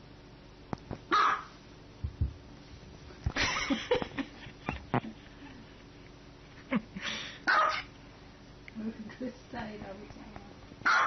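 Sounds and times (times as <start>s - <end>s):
small dog barking: 1.1s - 1.6s, 7.4s - 7.9s.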